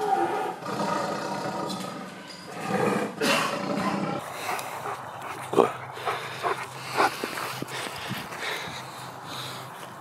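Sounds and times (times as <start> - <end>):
lion roaring: 0.0 - 4.2.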